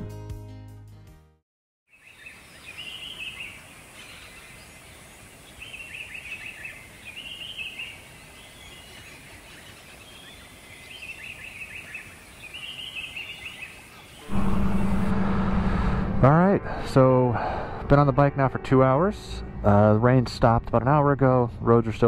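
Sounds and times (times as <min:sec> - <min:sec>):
birds singing: 0:01.9 - 0:14.3.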